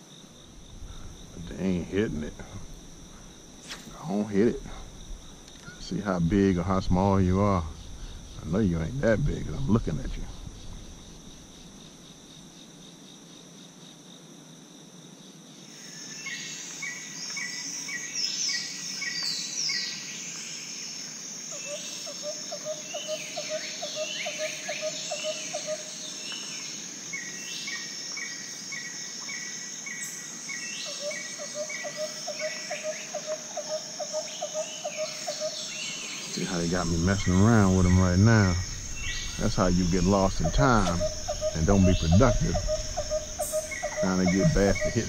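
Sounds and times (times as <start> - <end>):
high-pitched insect drone: 0.0 - 45.0
songbirds singing: 15.8 - 45.0
low fast bird trill: 36.9 - 45.0.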